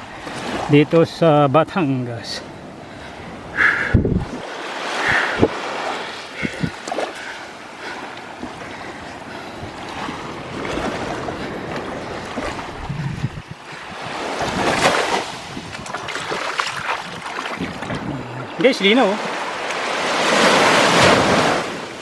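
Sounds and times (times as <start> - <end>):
waves washing onto shore: 0.0 - 22.0
wind on microphone: 3.2 - 6.9, 9.5 - 18.6.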